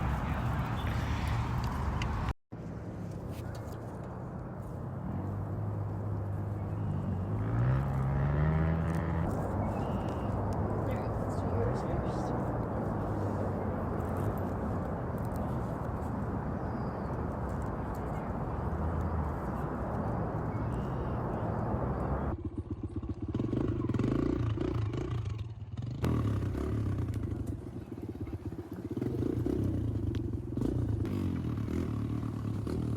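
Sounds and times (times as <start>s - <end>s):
dirt bike engine running: 5.2s - 15.3s, 18.2s - 32.9s.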